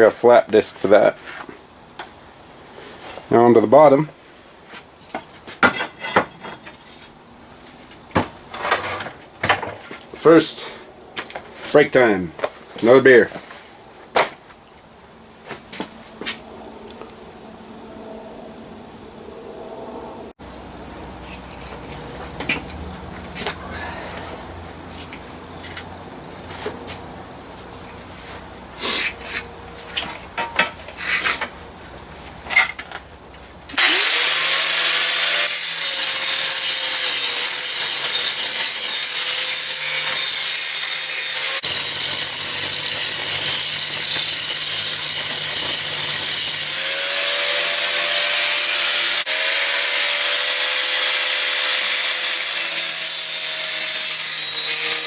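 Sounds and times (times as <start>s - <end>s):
power grinder grinding steel: 33.7s - 55.0s.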